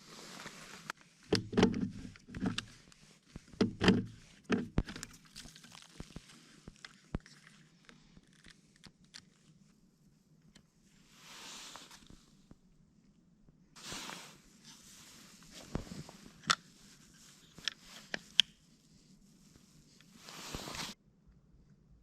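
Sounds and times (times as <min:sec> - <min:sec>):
small handling clicks and knocks: 0:00.9 - 0:02.8, 0:03.5 - 0:05.6.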